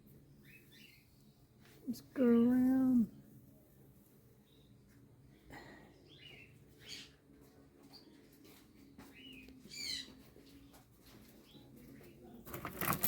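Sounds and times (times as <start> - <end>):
caged birds chirping and squawking: 0.1 - 1.6, 4.4 - 13.0.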